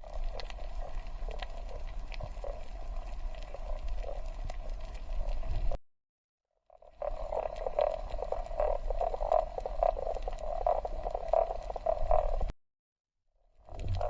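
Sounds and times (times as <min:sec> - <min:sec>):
frogs croaking: 0:06.9 - 0:12.5.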